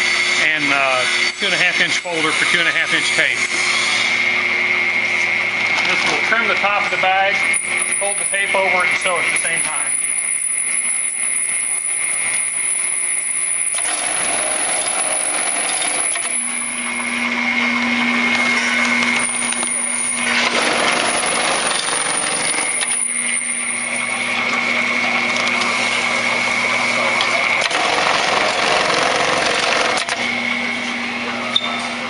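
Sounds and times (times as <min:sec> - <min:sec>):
sewing machine running with whine: 0:05.8 - 0:31.4.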